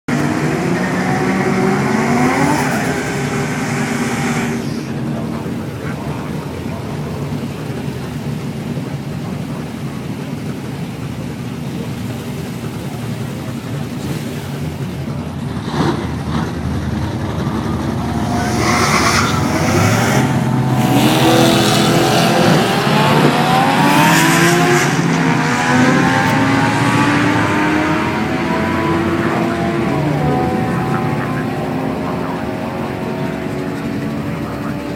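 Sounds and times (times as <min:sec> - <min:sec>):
car engine revving and accelerating: 0:00.1 - 0:34.9.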